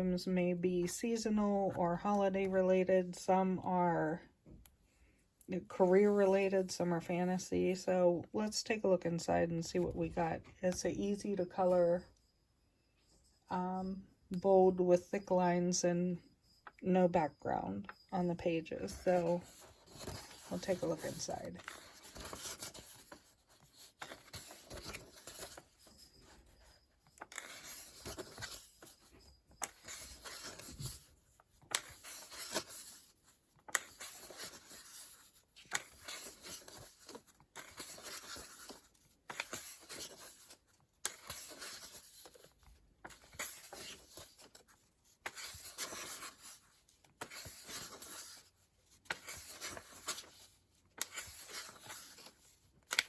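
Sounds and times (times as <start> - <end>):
paper pages turning: 19.3 - 53.0.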